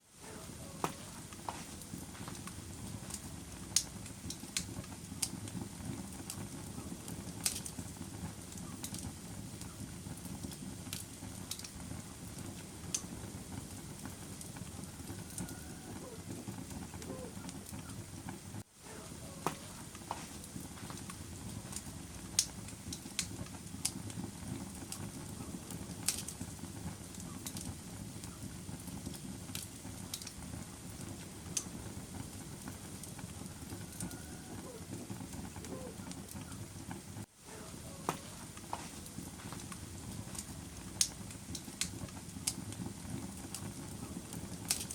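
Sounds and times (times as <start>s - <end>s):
fire crackling and popping: 0.0s - 44.9s
fire rumbling: 0.0s - 44.9s.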